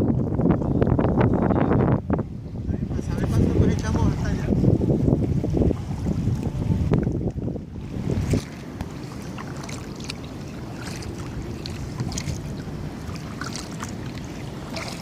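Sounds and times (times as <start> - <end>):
wind rumbling on microphone: 0.0 - 15.0
paddle water splashing and dripping: 5.0 - 15.0.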